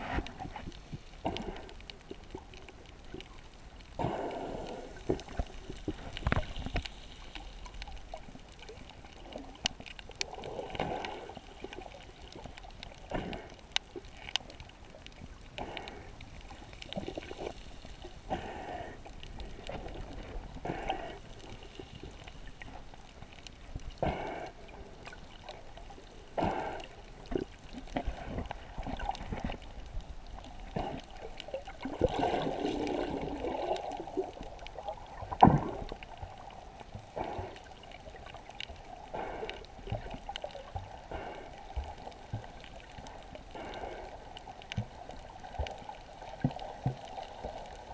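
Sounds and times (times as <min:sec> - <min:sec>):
water sloshing and gurgling: 0:00.0 - 0:47.9.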